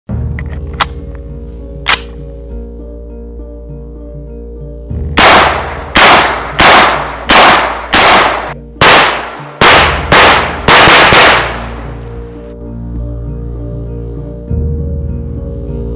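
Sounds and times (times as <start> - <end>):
background music: 0.1 - 15.9
shotgun shots echoing: 5.2 - 12.0.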